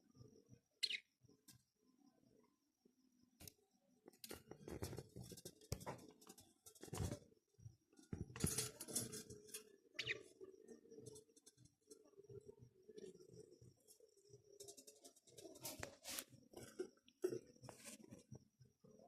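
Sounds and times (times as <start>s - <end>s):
bird chirp: 0.7s - 1.3s, 9.8s - 15.6s
birds rustling and tapping: 4.0s - 18.4s.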